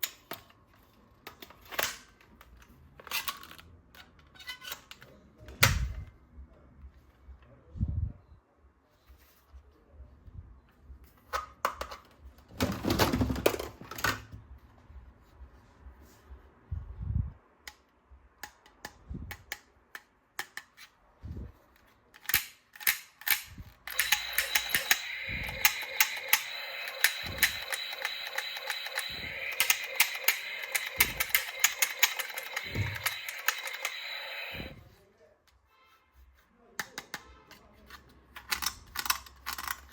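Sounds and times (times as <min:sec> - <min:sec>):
plastic toy parts clicking: 0:22.2 - 0:34.7, 0:38.3 - 0:39.9.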